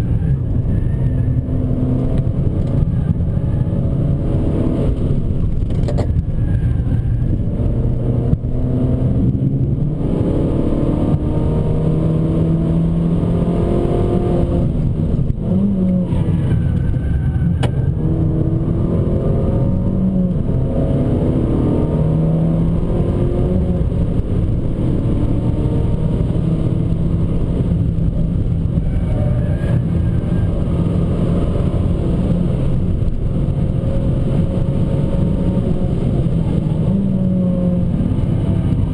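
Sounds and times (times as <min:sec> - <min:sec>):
car engine accelerating through gears: 0:00.0 - 0:38.9
road and tyre noise: 0:00.0 - 0:38.9.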